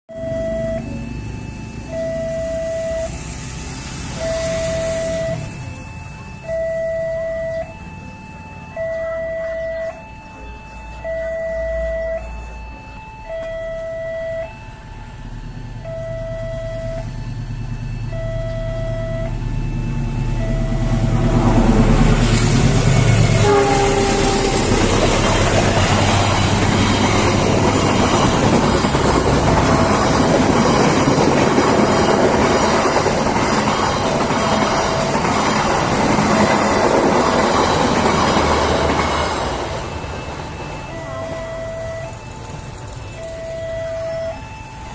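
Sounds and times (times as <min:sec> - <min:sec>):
crossing alarm two-tone chime: 0:00.1 - 0:44.9
train passing loudly: 0:02.6 - 0:05.8, 0:18.7 - 0:44.9
train horn blast: 0:22.3 - 0:26.7.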